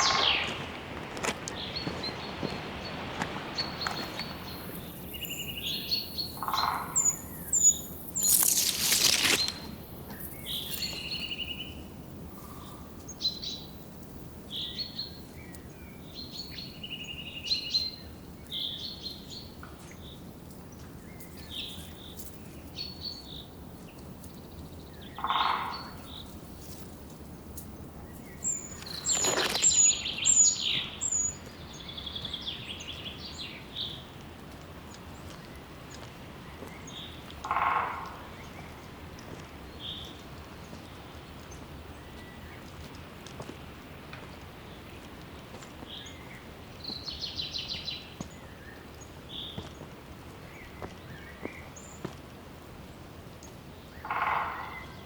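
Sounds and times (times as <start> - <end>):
forest birds singing: 0.0 - 13.8, 14.4 - 34.2, 34.9 - 42.7, 45.7 - 49.8, 53.4 - 55.0
rustling noises: 8.1 - 11.3, 26.3 - 30.4.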